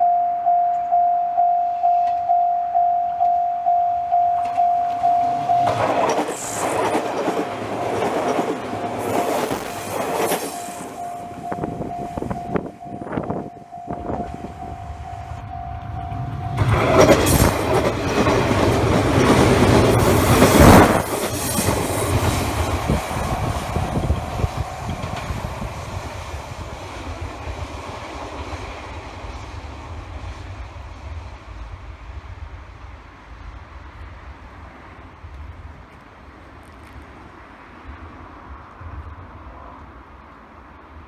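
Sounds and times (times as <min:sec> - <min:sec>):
level crossing bell ringing: 0:00.0 - 0:05.9, 0:10.9 - 0:16.6
electric train passing: 0:00.0 - 0:41.0
wheels clattering over rail joints: 0:04.4 - 0:12.4, 0:14.2 - 0:30.5.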